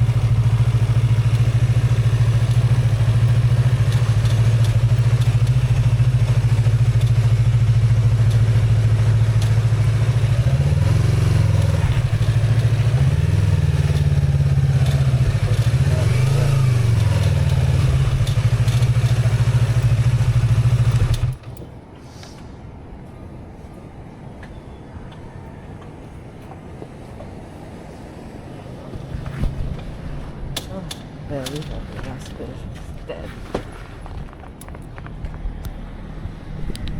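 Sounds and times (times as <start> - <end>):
motorcycle engine idling: 0.0 - 21.6.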